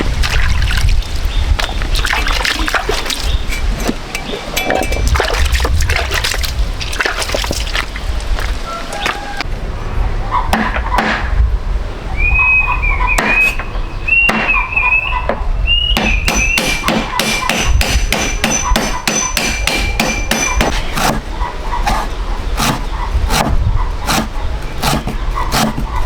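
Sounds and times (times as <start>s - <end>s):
sharp knocks: 10.5s - 11.3s, 14.3s - 14.6s, 16.0s - 26.0s.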